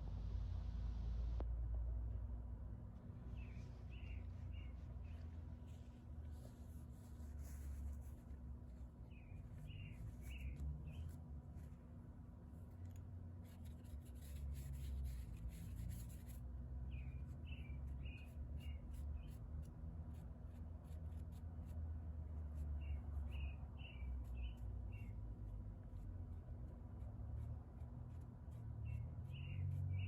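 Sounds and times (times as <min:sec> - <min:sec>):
steady low rumble: 0:00.0 - 0:20.6
small bird chirping: 0:03.3 - 0:06.5, 0:07.4 - 0:11.7, 0:13.4 - 0:19.7, 0:22.4 - 0:26.6, 0:28.1 - 0:30.0
light ticking or scratching: 0:03.3 - 0:30.0.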